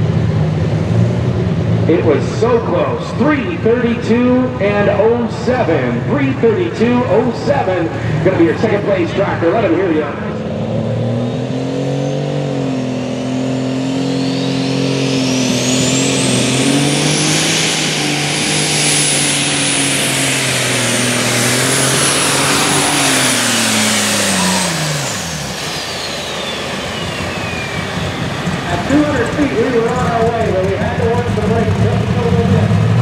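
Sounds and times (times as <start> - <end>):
diesel engine running hard: 0.0 - 33.0
turbo whine: 11.3 - 32.4.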